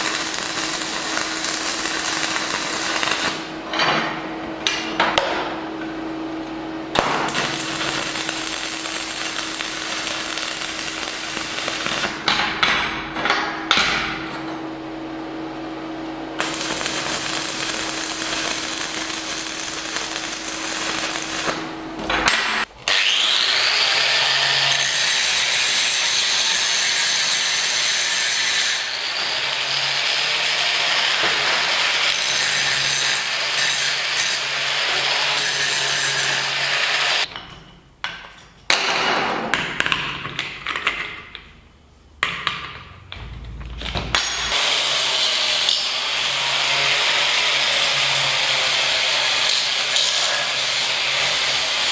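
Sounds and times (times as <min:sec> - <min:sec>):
power tool grinding steel: 0:16.4 - 0:21.6, 0:22.9 - 0:37.3, 0:44.1 - 0:51.9
steady hum: 0:41.8 - 0:44.6.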